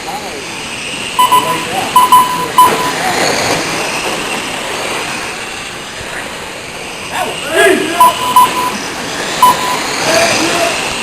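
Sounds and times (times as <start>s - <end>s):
racing truck engines passing: 0.0s - 11.0s
steady noisy rumble: 0.0s - 11.0s
short sharp beeps: 1.2s - 3.0s, 8.0s - 8.8s, 9.4s - 10.0s.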